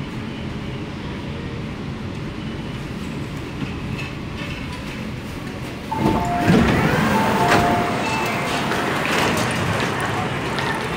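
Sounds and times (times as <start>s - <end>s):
train rumbling: 0.0s - 10.9s
sliding train doors opening: 3.6s - 10.9s.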